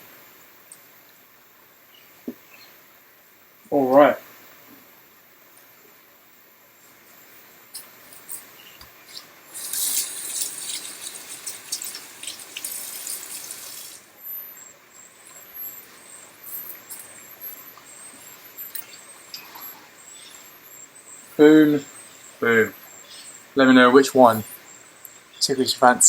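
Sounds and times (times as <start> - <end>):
faint crickets chirping: 0.0 - 26.0
kitchen tap running: 9.5 - 14.1.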